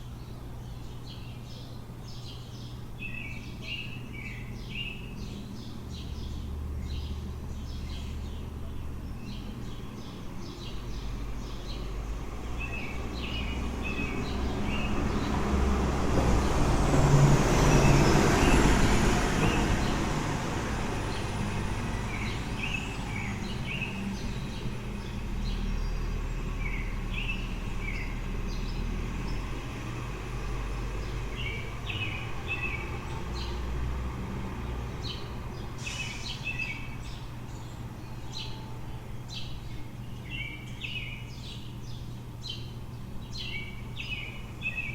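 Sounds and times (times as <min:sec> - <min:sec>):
small birds chirping: 0:00.0 - 0:17.0, 0:17.6 - 0:44.9
low city hum: 0:00.0 - 0:44.9
vehicle driving past: 0:10.5 - 0:39.6.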